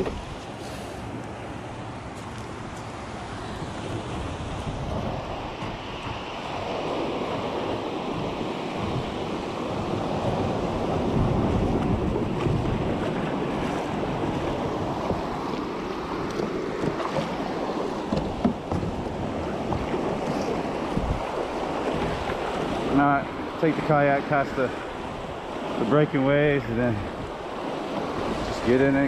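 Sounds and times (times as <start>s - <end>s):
surf breaking on a beach: 0.0s - 29.0s
wind gusting on microphone: 2.5s - 29.0s.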